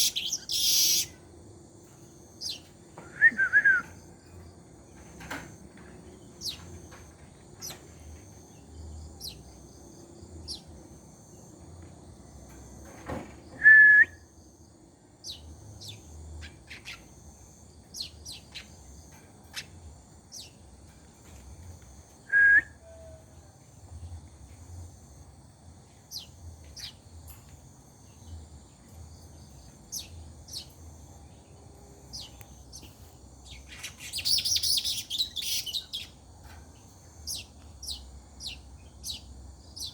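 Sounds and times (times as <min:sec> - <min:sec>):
dense bird chattering: 0:00.0 - 0:01.2.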